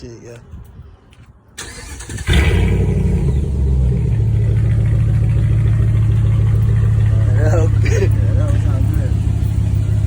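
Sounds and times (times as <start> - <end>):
loud engine deep idle: 4.3 - 10.0.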